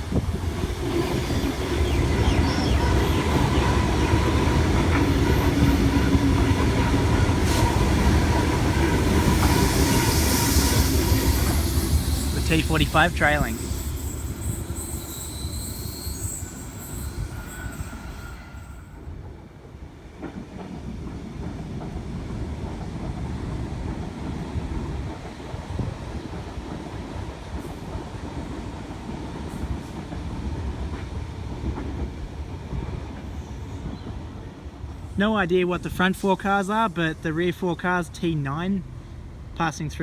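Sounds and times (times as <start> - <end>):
train wheels rumbling on track: 0.0 - 40.0
train wheel squeal: 0.9 - 19.3, 33.2 - 35.1.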